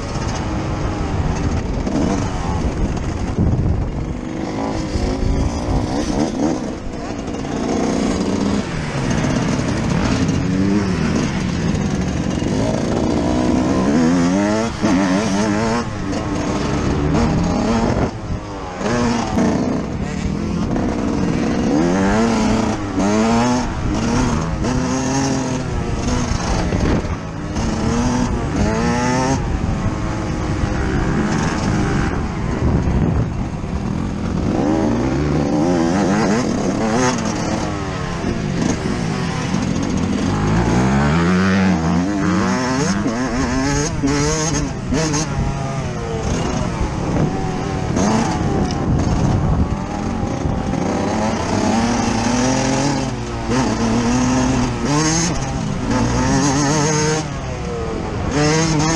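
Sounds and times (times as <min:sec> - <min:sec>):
motocross engine revving: 0:00.0 - 0:58.9
rushing wind noise: 0:00.0 - 0:58.9.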